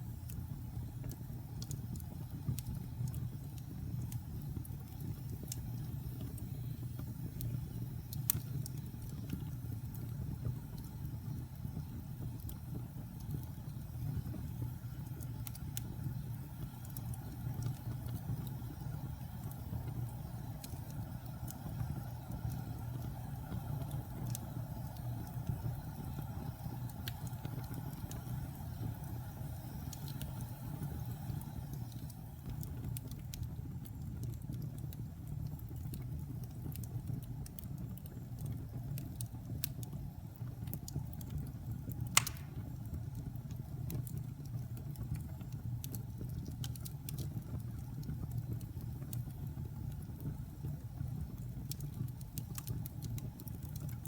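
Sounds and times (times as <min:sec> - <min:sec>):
fire crackles: 0:00.0 - 0:54.0
wood fire rumbling: 0:00.0 - 0:54.0
fire pop: 0:41.9 - 0:44.0.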